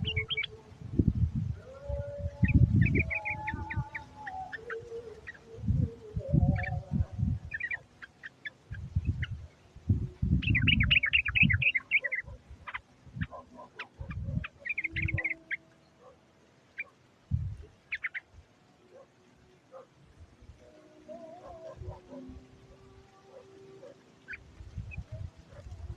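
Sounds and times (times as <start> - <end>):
bird chattering calls: 7.5 - 9.4, 10.4 - 15.7, 17.7 - 18.3.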